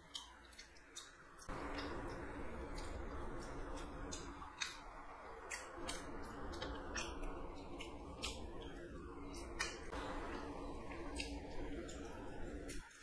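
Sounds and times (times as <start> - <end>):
faint steady hum: 0.0 - 13.0
wet chewing mouth clicks: 5.4 - 12.2.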